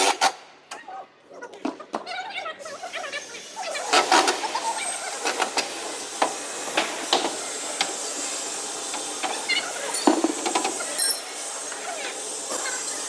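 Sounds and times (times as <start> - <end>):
steady hiss: 3.1 - 13.0.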